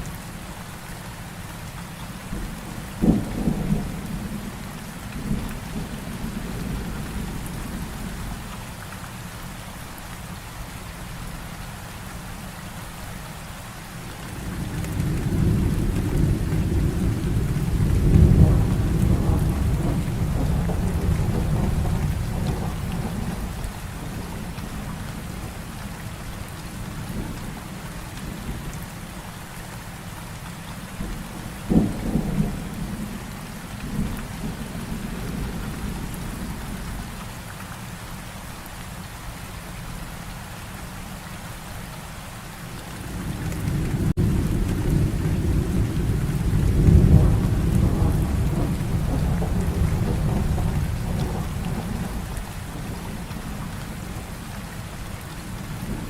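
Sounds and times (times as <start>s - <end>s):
heavy rain falling: 0.0s - 56.0s
rolling thunder rumble: 2.3s - 8.4s, 14.3s - 27.6s, 31.0s - 37.1s, 42.9s - 56.0s
sharp thunderclap: 14.9s - 23.5s, 43.6s - 53.2s.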